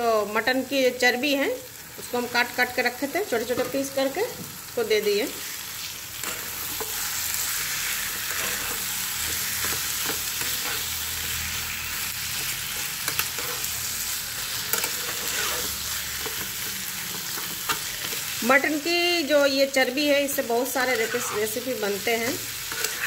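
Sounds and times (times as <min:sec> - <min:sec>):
fat sizzling in hot oil: 0:00.0 - 0:23.0
spatula scraping a pan: 0:06.2 - 0:13.8, 0:14.4 - 0:18.4, 0:20.8 - 0:23.0.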